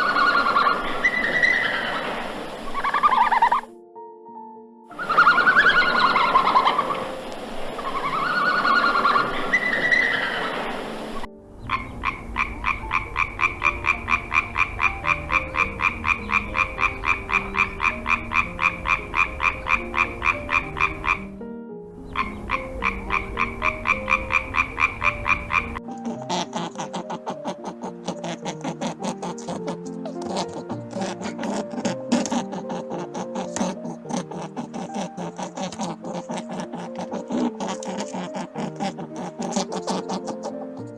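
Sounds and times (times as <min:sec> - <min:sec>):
frog croaking: 0:00.0 - 0:03.7, 0:04.9 - 0:40.9
noisy wavering sound: 0:05.0 - 0:21.4.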